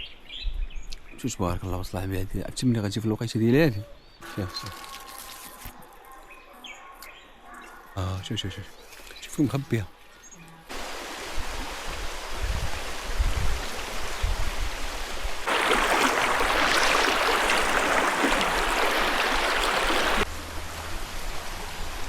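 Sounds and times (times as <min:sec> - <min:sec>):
stream water rushing: 0:10.7 - 0:14.2, 0:15.4 - 0:20.3.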